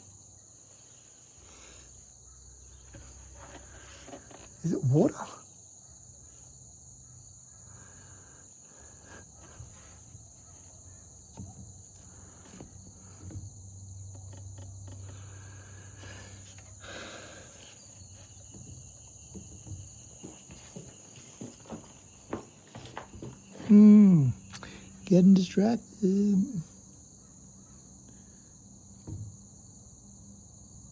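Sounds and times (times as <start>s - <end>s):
high-pitched insect chorus: 0.0s - 30.9s.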